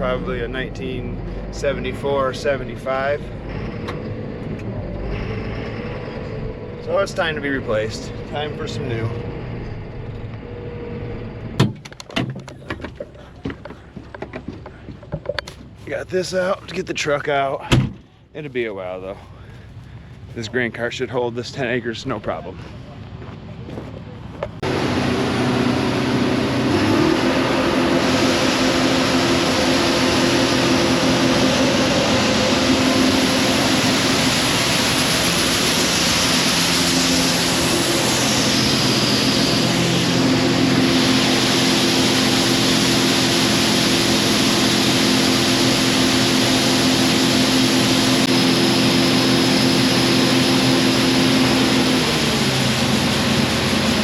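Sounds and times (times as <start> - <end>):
heavy diesel engine running: 0.0 - 11.6, 23.2 - 54.0.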